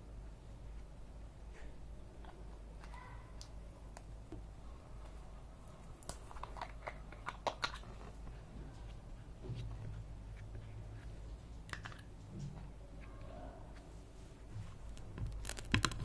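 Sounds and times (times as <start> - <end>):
low steady hum: 0.0 - 16.0
small objects clicking and tapping: 11.6 - 12.6, 14.9 - 16.0.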